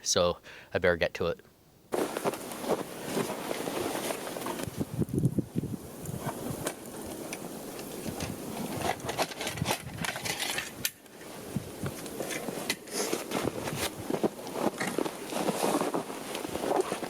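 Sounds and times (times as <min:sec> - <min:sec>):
footsteps crunching through snow: 0:01.9 - 0:04.8, 0:11.9 - 0:17.0
rustling: 0:01.9 - 0:17.0
wind on microphone: 0:04.5 - 0:12.0.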